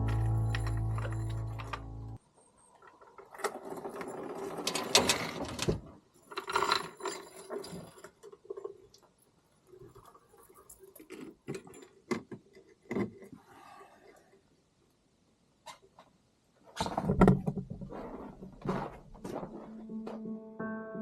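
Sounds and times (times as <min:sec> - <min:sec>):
clattering and knocking of objects: 0:09.8 - 0:13.4, 0:16.7 - 0:19.7.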